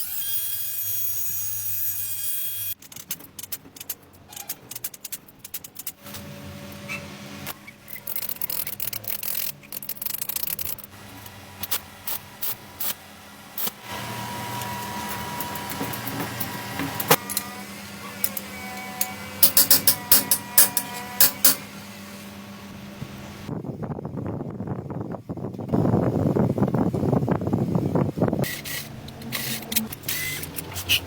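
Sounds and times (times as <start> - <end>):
steady hum: 10.7 - 23.8
tools and metal parts clinking: 15.0 - 17.5, 18.2 - 21.7.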